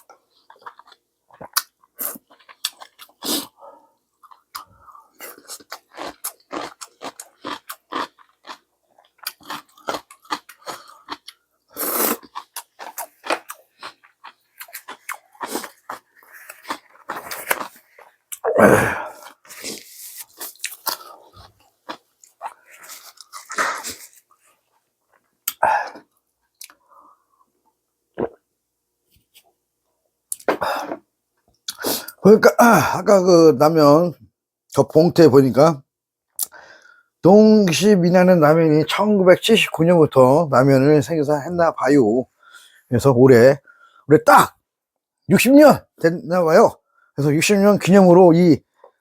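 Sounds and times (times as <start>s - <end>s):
person chewing food: 0.0s - 3.6s, 4.2s - 26.9s.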